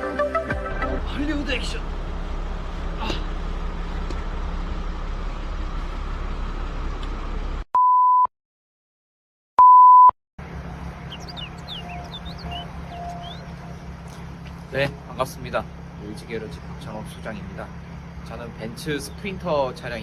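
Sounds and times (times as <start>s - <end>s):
low rumbling noise: 10.4s - 15.1s.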